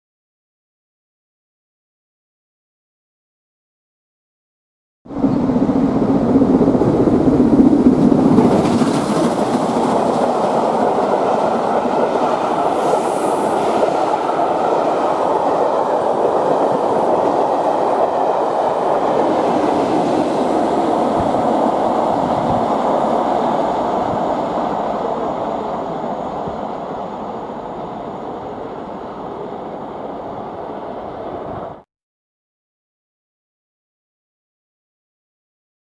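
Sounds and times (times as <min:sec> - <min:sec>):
steam locomotive passing: 0:05.1 - 0:31.8
train wheels clicking on rails: 0:05.2 - 0:27.8.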